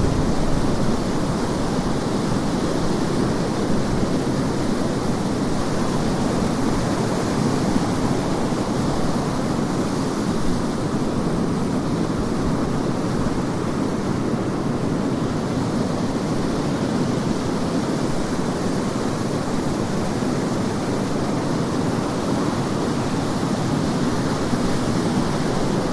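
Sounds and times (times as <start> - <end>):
wind buffeting microphone: 0.0 - 4.1
surf washing onto beach: 0.0 - 25.9.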